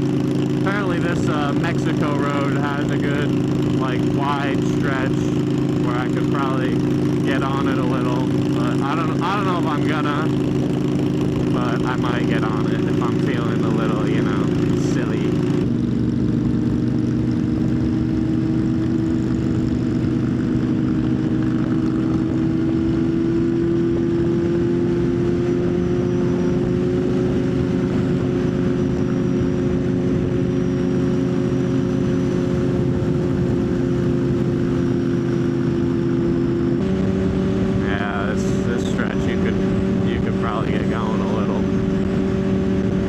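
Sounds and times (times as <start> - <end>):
motorcycle engine cruising: 0.0 - 43.0.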